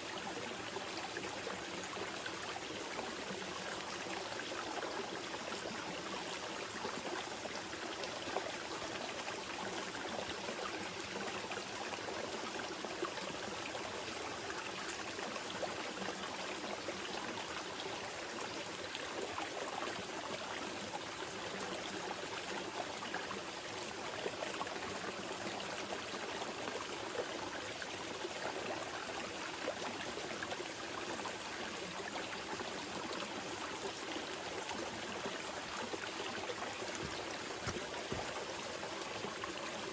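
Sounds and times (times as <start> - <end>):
river flowing over rocks: 33.8 - 39.9.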